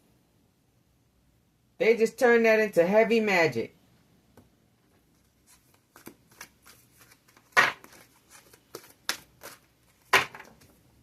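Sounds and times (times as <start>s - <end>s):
cards being shuffled: 5.0s - 10.8s.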